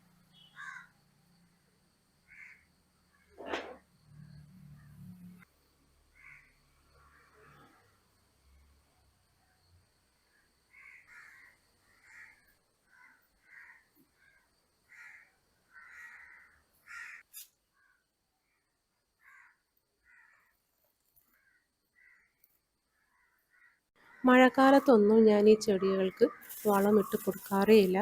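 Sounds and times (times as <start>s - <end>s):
crows cawing: 0.6s - 0.9s, 2.3s - 2.6s, 6.2s - 6.5s, 10.7s - 18.0s, 19.2s - 20.5s, 21.4s - 22.4s, 23.0s - 24.3s, 26.3s - 27.6s.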